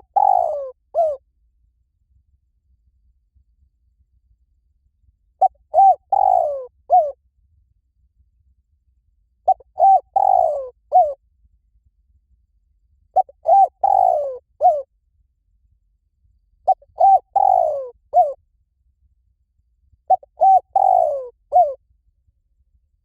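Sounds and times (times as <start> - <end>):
dove cooing: 0.0 - 1.2, 5.4 - 7.2, 9.5 - 11.2, 13.2 - 14.9, 16.7 - 18.4, 20.1 - 21.8.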